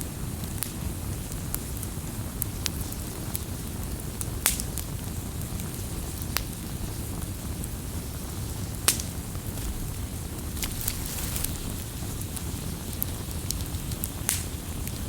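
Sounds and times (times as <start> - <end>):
campfire crackling: 8.6 - 15.0.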